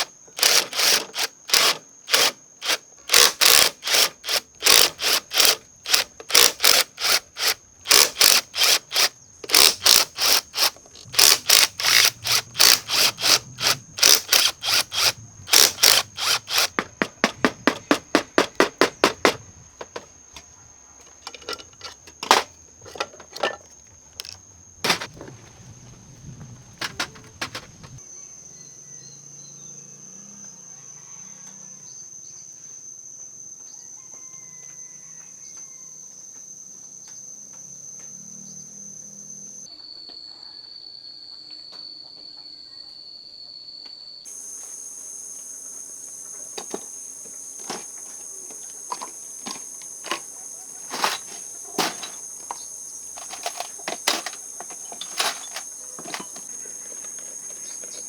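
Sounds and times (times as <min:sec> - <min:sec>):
crickets droning: 0:00.0 - 0:58.0
sharp clicks and knocks: 0:26.8 - 0:28.0.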